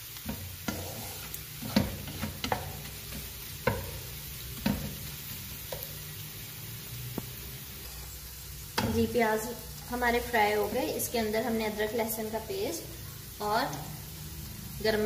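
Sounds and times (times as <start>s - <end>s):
wooden spatula scraping a wok: 0.0s - 6.0s
spices sizzling in hot oil: 0.0s - 15.0s.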